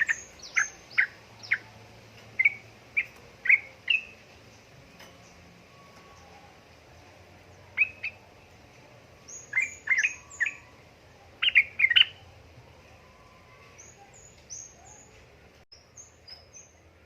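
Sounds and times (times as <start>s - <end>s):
bird chirping in bursts: 0.0s - 6.4s, 7.0s - 8.6s, 9.2s - 12.4s.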